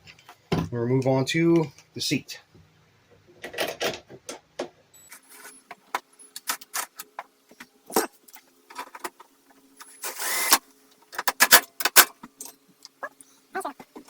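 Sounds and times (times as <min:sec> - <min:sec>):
clicks and knocks of metal and plastic: 0:11.1 - 0:12.6.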